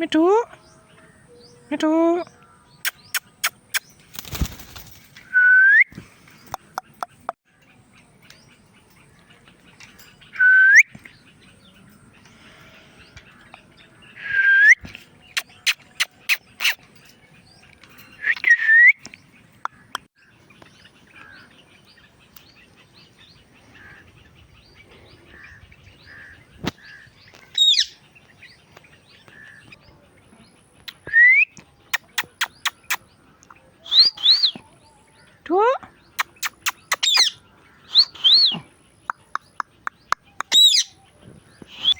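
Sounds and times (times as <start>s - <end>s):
soft bird chirps: 0.5s - 41.9s
parakeet calling: 25.3s - 28.0s.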